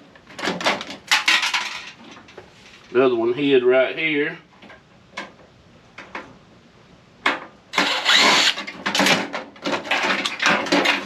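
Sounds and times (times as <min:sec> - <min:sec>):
metal parts rattling and scraping: 0:00.4 - 0:02.9, 0:07.8 - 0:11.0.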